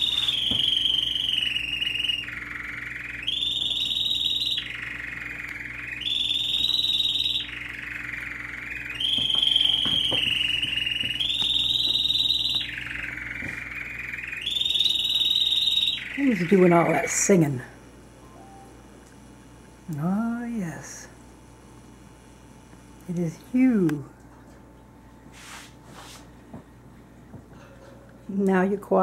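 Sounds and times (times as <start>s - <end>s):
caged bird whistling: 0.0s - 17.2s.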